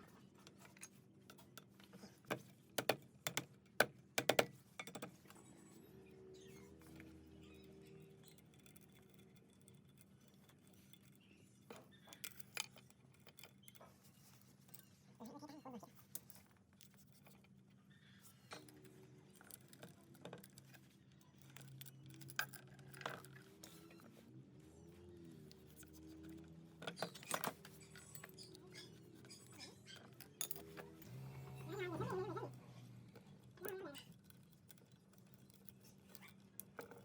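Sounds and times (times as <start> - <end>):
clicks and taps of tools: 0.6 - 5.2.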